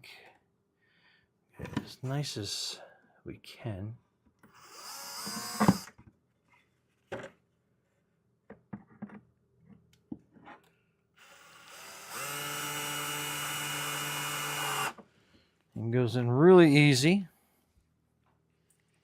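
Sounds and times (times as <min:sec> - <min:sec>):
screw gun motor whine: 0:04.5 - 0:06.0, 0:11.2 - 0:15.0.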